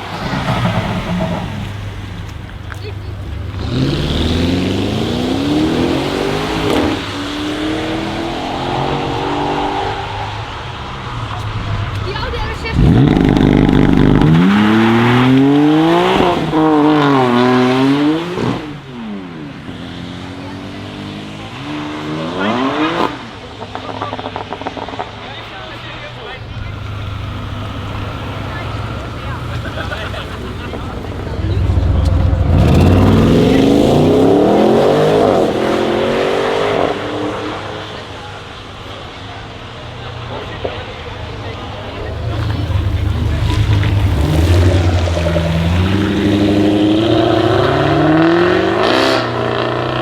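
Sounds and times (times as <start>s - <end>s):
car engine accelerating hard: 0.0s - 50.0s.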